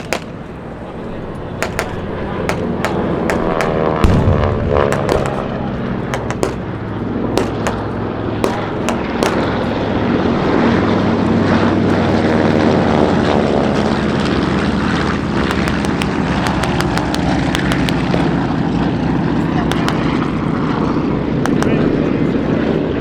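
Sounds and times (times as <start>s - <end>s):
sharp pops: 0.0s - 0.5s, 1.6s - 9.7s, 15.4s - 18.3s
propeller aircraft flying past: 0.0s - 23.0s.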